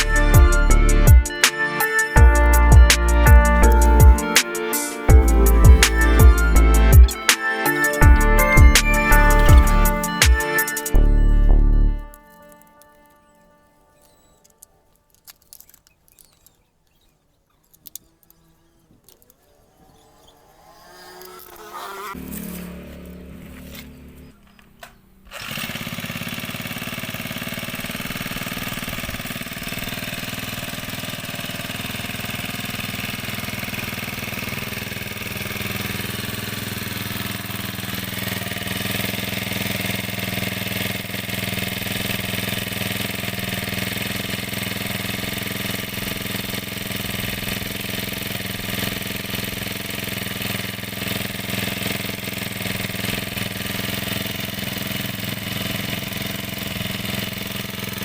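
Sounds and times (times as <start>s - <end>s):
lawn mower engine running: 1.8s - 58.0s.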